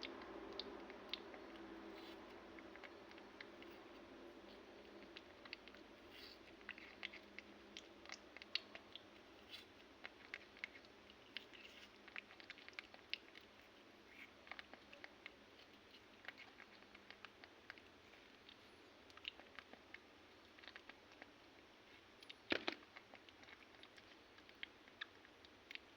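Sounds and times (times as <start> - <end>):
faint chewing: 0.0 - 25.9.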